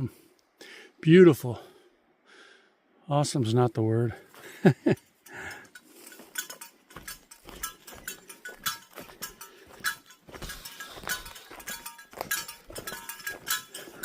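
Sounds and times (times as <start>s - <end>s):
footsteps on forest trail: 4.2s - 4.7s, 5.3s - 14.0s
metal gear clinking: 5.3s - 14.0s.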